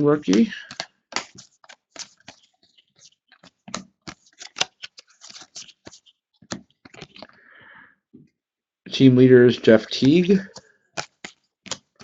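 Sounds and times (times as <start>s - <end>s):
trading cards flipping: 0.0s - 7.4s, 10.0s - 12.0s.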